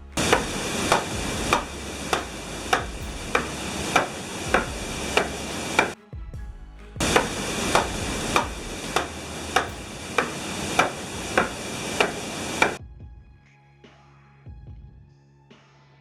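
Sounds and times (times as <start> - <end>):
saw knocking through timber: 0.0 - 6.0, 7.0 - 12.8.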